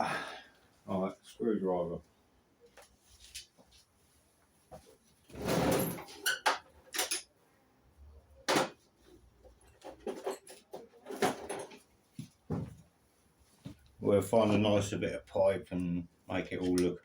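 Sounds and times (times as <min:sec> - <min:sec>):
metal clinks and scrapes of tools: 0:05.5 - 0:07.3, 0:09.6 - 0:11.8.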